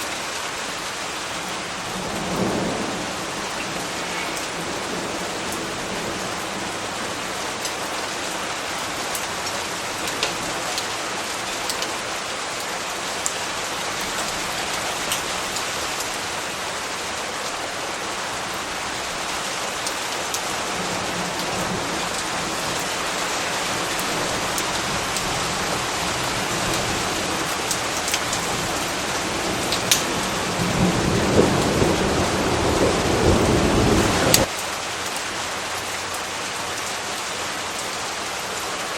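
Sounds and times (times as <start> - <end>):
steady rain: 0.0 - 38.9
thunder rumbling: 1.2 - 10.7, 20.6 - 34.5
raindrops ticking: 3.4 - 6.4, 7.5 - 16.3, 21.4 - 31.8, 34.3 - 36.9.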